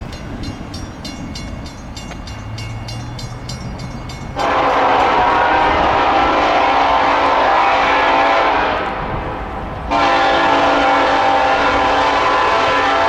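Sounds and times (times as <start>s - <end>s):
diesel locomotive rumble: 0.0s - 13.0s
locomotive air horn: 4.4s - 13.0s.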